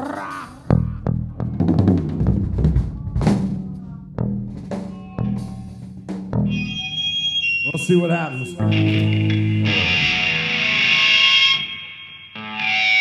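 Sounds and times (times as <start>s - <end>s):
drum kit playing: 0.1s - 7.0s.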